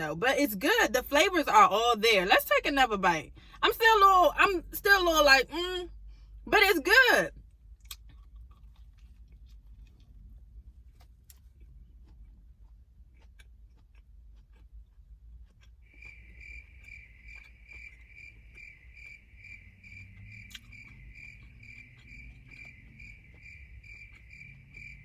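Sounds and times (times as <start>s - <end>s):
faint chewing clicks: 7.8s - 25.0s
cricket chirping: 15.9s - 25.0s.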